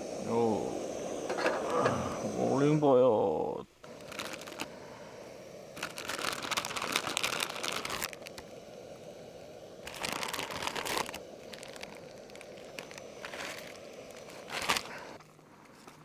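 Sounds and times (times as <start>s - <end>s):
low hiss: 0.0s - 16.0s
plastic packaging crinkling and tearing: 3.8s - 4.8s, 5.7s - 8.7s, 9.8s - 16.0s.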